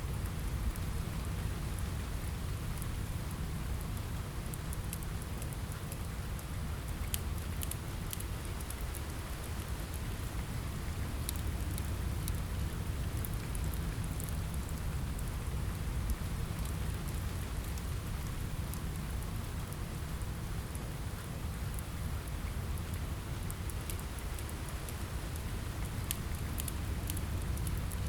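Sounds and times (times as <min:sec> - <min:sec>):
rain on a window: 0:00.0 - 0:28.0
wood fire crackling: 0:00.1 - 0:28.0.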